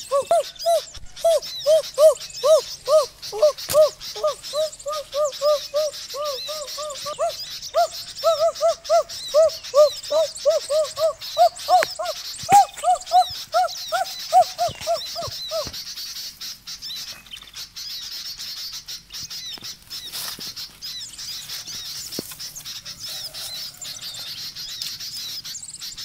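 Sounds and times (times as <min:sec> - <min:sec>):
bird calling short notes: 0:00.0 - 0:15.8
faint high chirping: 0:00.0 - 0:15.9.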